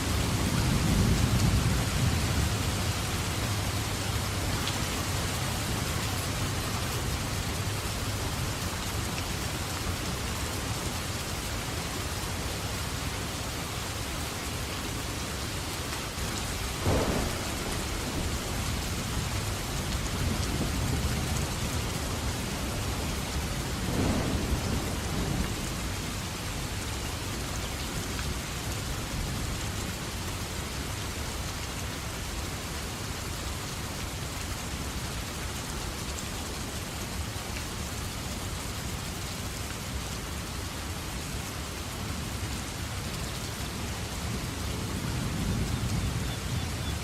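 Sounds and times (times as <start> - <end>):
heavy rain falling: 0.0 - 47.0
thunder crack: 16.8 - 18.8, 23.9 - 25.6
thunder rumble: 16.8 - 26.4.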